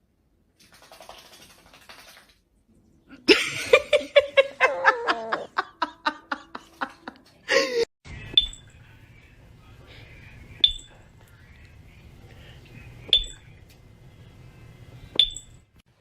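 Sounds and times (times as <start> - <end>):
person laughing hard: 3.2 - 7.9.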